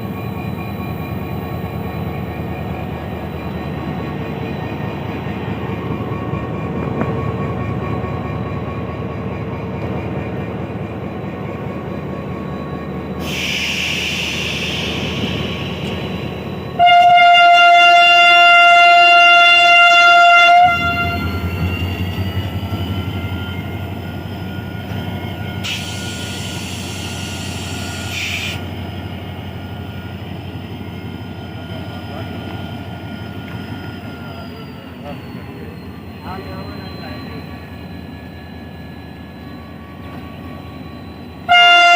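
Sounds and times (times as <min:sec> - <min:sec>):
locomotive engine rumbling: 0:00.0 - 0:41.9
train horn blast: 0:16.8 - 0:21.4, 0:41.4 - 0:41.9.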